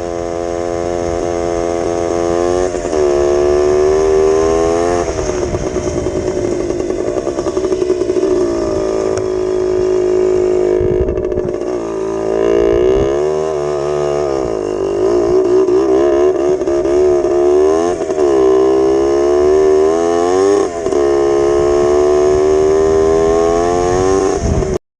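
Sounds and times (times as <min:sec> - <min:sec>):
two-stroke engine revving: 0:00.0 - 0:24.8.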